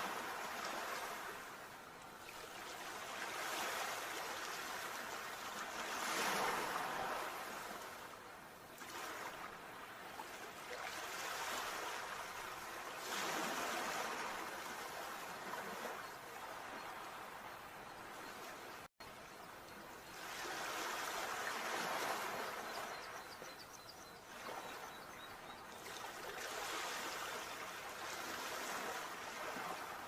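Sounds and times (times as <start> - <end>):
sea waves breaking: 13.0 - 17.3.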